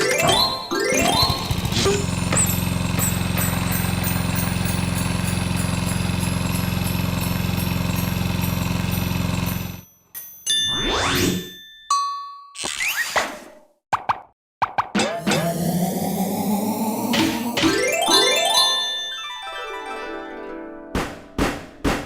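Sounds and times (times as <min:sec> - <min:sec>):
pulsing mechanical drone: 0:15.2 - 0:17.7.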